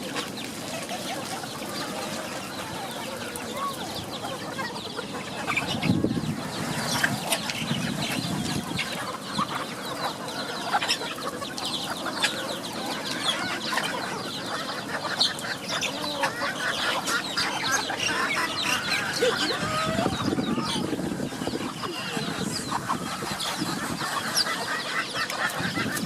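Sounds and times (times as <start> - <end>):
chickens clucking and chirping: 0.0 - 26.0.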